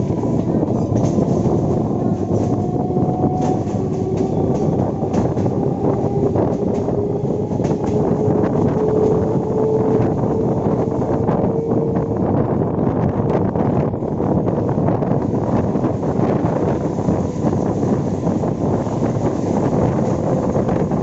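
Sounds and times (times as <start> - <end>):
train rumble: 0.0 - 21.0
wheels clicking on track: 0.1 - 10.8
traction motor whine: 0.1 - 12.6.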